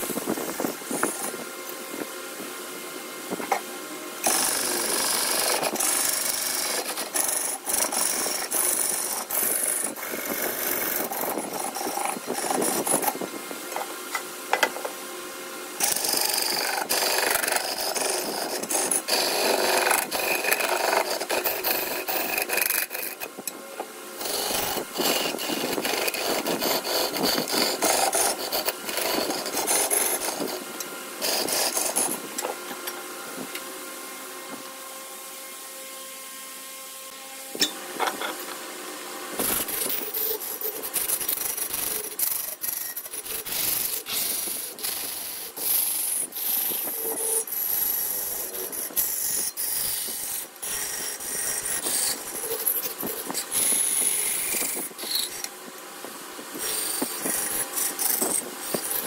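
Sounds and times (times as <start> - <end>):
lathe tool scraping wood: 0.0 - 1.4, 4.2 - 13.9, 15.8 - 23.5, 24.2 - 32.8, 39.3 - 59.0.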